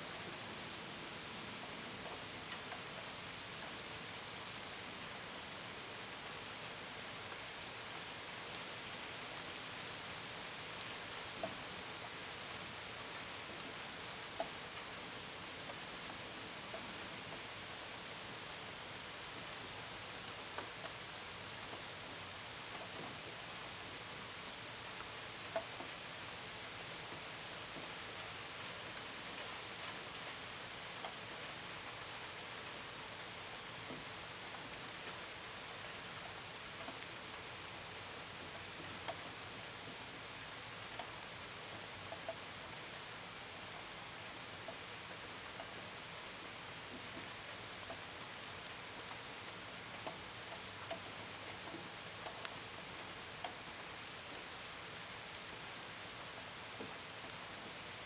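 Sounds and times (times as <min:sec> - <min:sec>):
gentle rain: 0:00.0 - 0:58.0
crickets chirping: 0:40.2 - 0:49.7, 0:53.4 - 0:58.0.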